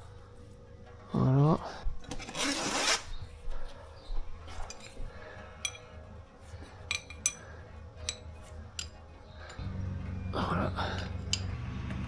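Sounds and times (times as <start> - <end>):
low steady hum: 0.0 - 12.0
metallic clinks of tools: 6.8 - 9.8, 10.7 - 12.0.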